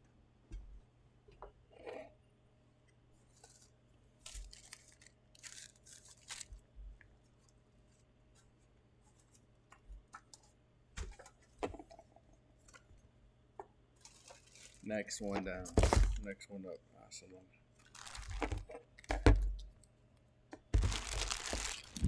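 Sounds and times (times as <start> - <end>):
packaging rustling and tearing: 4.2 - 6.6, 14.0 - 14.8, 15.7 - 16.2, 17.8 - 19.4, 20.8 - 22.0.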